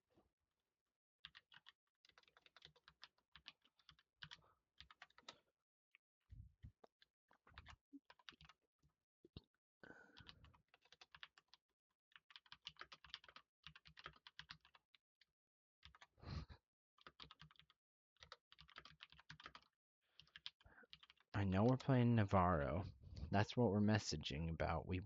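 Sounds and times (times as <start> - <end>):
typing on computer keyboard: 1.2 - 5.4, 6.8 - 8.6, 9.9 - 15.0, 15.8 - 16.1, 17.0 - 21.8.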